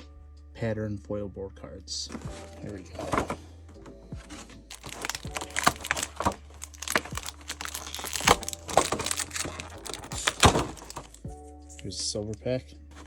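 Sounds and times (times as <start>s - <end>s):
wrappers crinkling: 4.2s - 11.3s.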